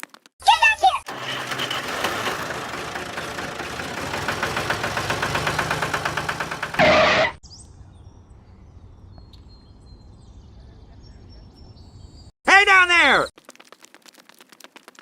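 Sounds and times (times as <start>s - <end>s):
small engine chugging: 1.0s - 7.4s.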